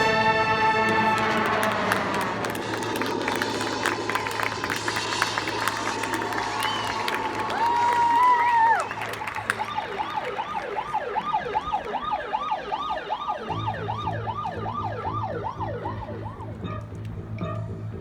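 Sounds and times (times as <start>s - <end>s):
rising and falling siren wails: 0.0s - 17.6s.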